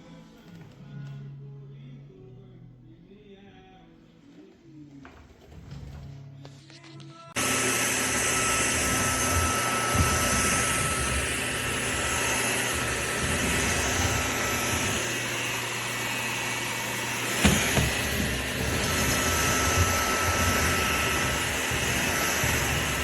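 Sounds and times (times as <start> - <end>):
stick vacuum motor whine: 7.4 - 23.0.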